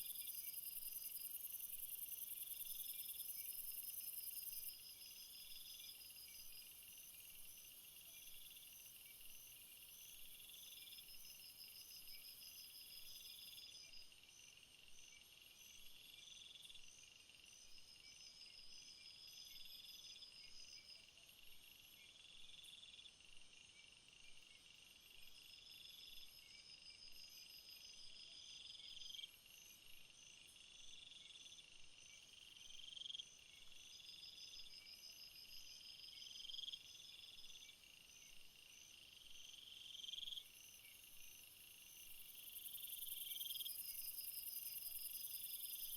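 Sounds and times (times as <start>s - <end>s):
fast pulsed insect trill: 39.2s - 45.9s.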